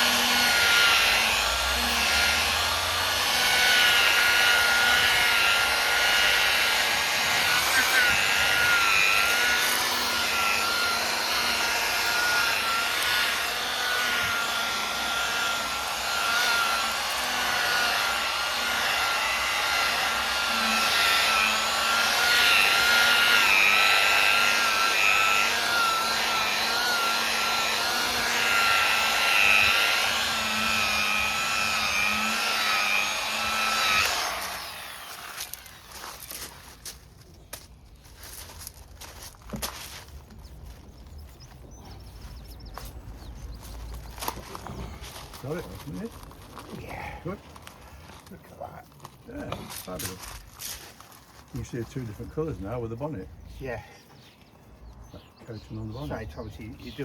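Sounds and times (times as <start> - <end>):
machine polisher motor whine: 0.0 - 36.6, 40.7 - 46.9.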